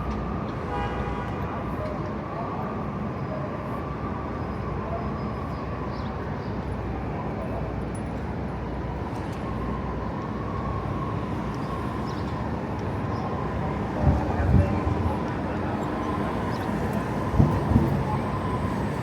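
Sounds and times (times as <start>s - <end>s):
traffic rumble: 5.8s - 19.0s.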